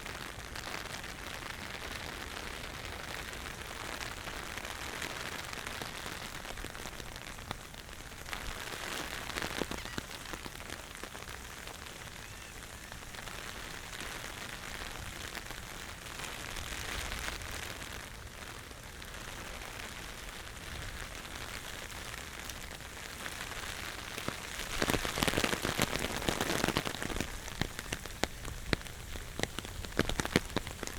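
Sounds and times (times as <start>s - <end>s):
raindrops tapping close by: 0.0s - 30.9s
steady rain falling: 0.0s - 30.9s.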